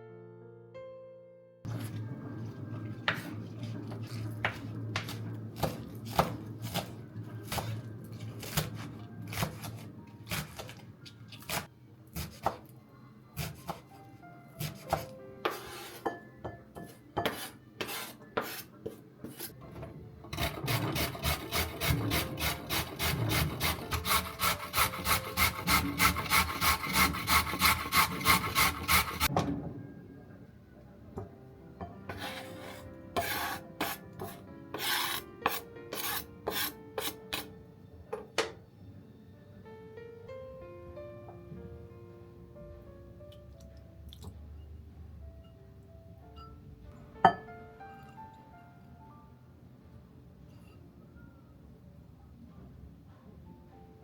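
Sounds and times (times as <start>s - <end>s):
vegetables grated on grater: 20.4s - 29.3s.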